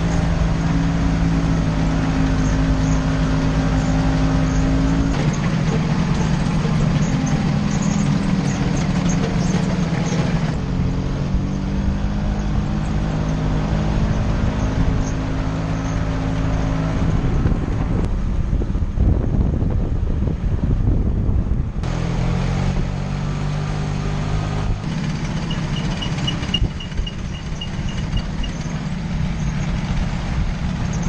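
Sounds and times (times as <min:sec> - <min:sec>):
scooter engine running: 0:00.0 - 0:10.6, 0:24.0 - 0:31.0.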